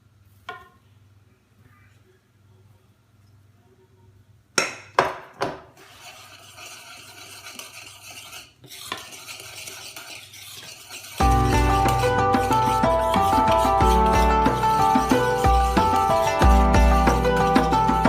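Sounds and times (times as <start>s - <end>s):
stirring and scraping batter: 5.8s - 18.0s.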